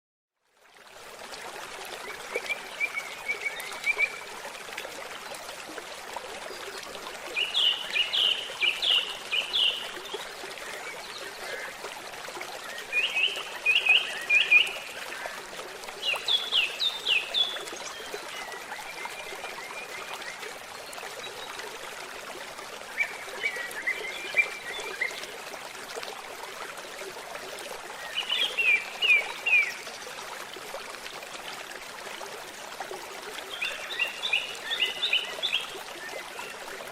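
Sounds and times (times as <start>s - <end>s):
stream babbling: 0.4s - 36.9s
songbird singing: 7.4s - 11.7s.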